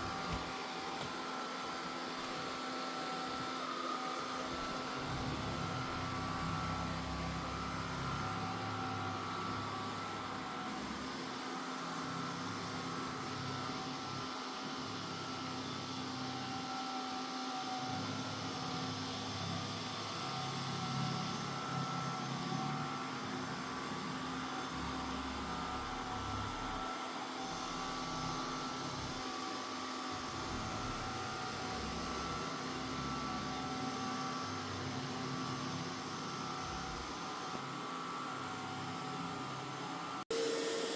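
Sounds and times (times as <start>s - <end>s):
robot vacuum motor whine: 0.0s - 40.9s.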